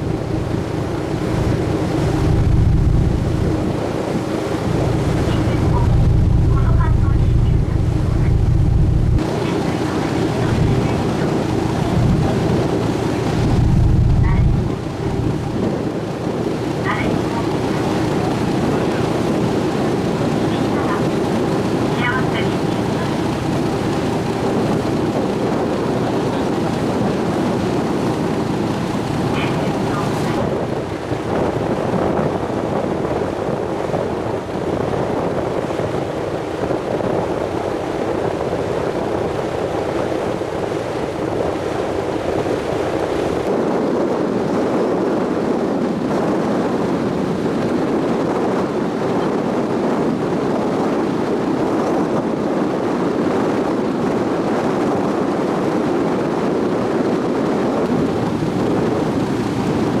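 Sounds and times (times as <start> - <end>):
water rushing: 0.0 - 43.6, 57.8 - 60.0
boat engine rumble: 0.0 - 60.0
wind buffeting microphone: 0.0 - 60.0.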